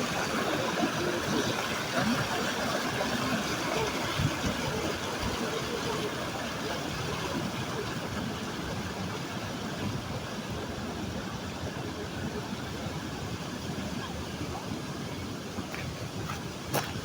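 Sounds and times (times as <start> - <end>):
water rushing over waterfall: 0.0 - 17.0.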